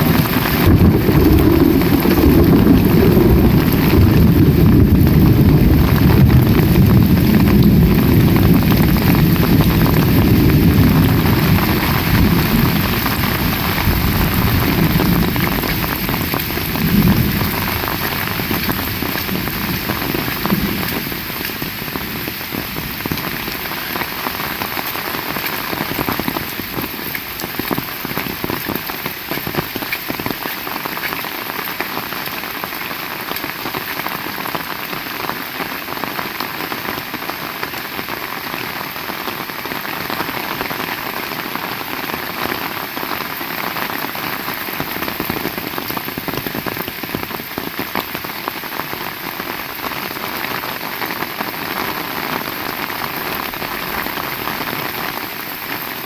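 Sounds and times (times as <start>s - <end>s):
heavy rain: 0.0s - 56.0s
low rumble: 0.1s - 22.4s.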